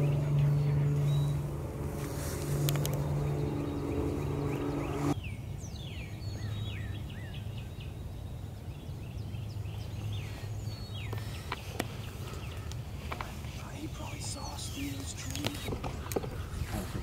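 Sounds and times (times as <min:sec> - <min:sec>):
vehicle engine running: 0:00.0 - 0:05.2
low steady rumble: 0:00.0 - 0:06.8
small songbirds chirping: 0:00.0 - 0:17.0.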